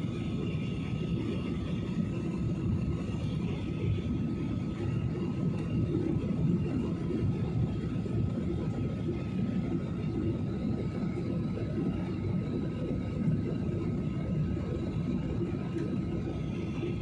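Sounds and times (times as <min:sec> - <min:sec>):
airliner low rumble: 0:00.0 - 0:17.0
faint steady whine: 0:00.0 - 0:17.0.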